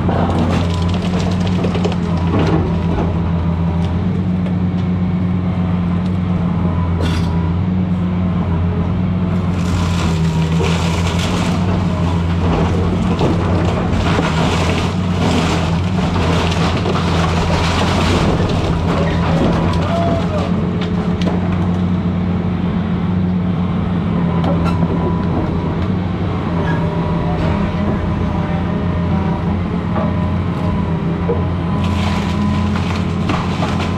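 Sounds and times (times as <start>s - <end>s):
wood and debris crunching: 0.0s - 4.9s, 9.3s - 22.1s, 24.5s - 33.9s
excavator diesel engine running: 0.0s - 33.9s.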